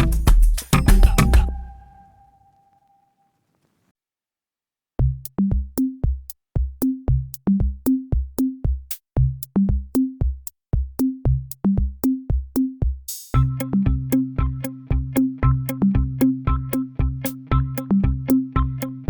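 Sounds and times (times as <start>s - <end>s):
electronic music with drum-machine beat: 0.0s - 2.0s.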